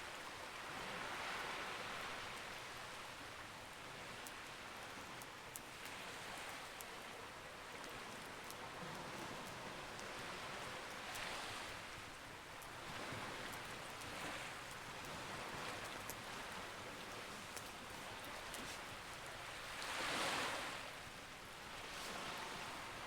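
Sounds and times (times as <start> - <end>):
sea waves: 12.8 - 23.0.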